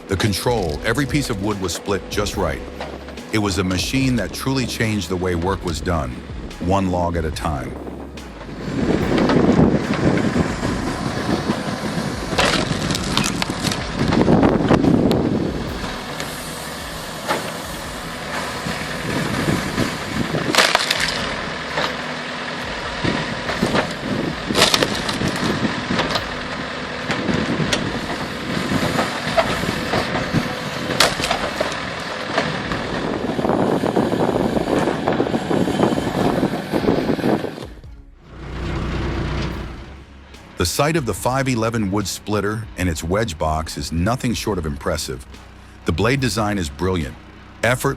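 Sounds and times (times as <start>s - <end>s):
wood-splitting machine running: 0.0s - 47.9s
logs cracking apart: 7.8s - 35.1s.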